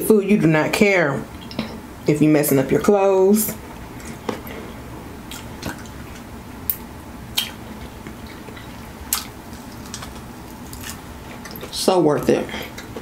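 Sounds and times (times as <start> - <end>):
chewing crunchy chicken wing: 5.3 - 11.8
crunching and smacking clicks: 5.3 - 11.8.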